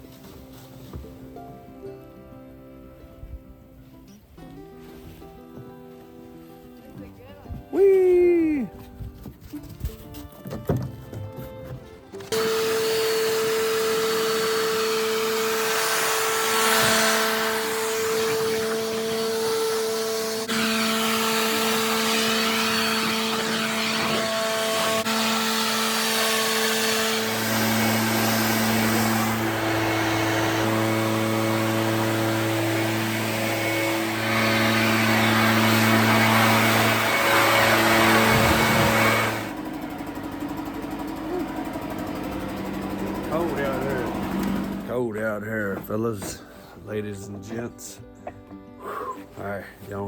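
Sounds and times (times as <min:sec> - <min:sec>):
machine motor whining hum: 0:12.3 - 0:44.9.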